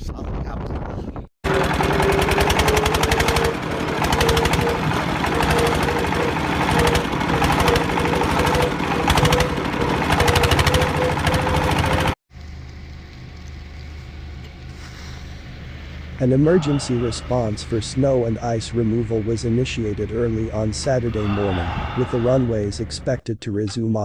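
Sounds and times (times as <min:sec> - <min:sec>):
machine hum: 0:01.4 - 0:23.2
machine hammering: 0:01.5 - 0:12.2
low steady rumble: 0:01.5 - 0:23.2.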